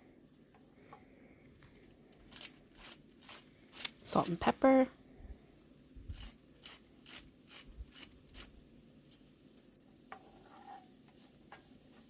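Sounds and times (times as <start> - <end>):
pepper mill grinding: 2.3 - 4.4, 6.1 - 8.5.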